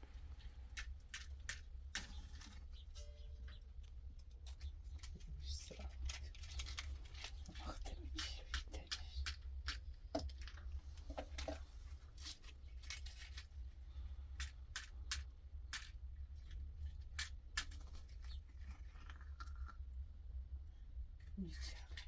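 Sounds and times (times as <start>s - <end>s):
steady low hum: 0.0s - 22.0s
sharp clicks and snips: 0.6s - 2.8s, 3.8s - 10.7s, 14.4s - 19.8s.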